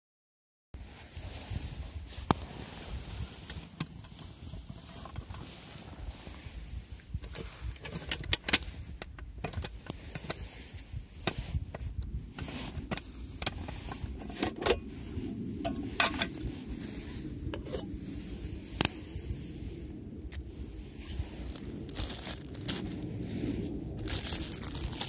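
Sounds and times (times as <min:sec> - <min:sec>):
low steady rumble: 0:00.8 - 0:25.0
objects being handled: 0:11.2 - 0:16.6, 0:17.4 - 0:18.0, 0:21.0 - 0:23.1, 0:24.0 - 0:25.0.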